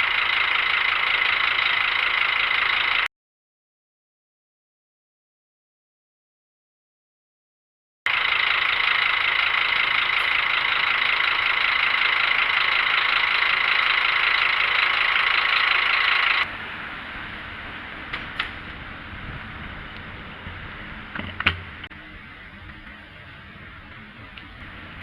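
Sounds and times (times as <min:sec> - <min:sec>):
traffic and road noise: 0:08.1 - 0:25.0.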